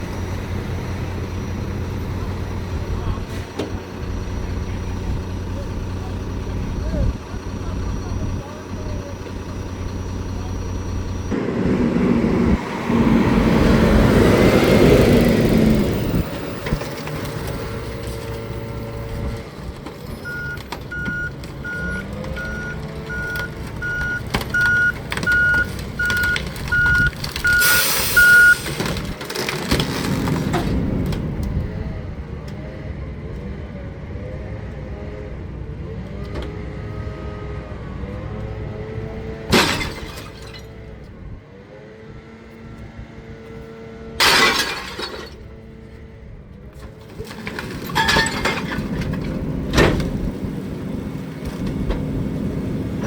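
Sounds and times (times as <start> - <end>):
truck diesel engine running: 0.0 - 35.9, 45.4 - 53.0
reversing alarm beeping: 20.2 - 28.7.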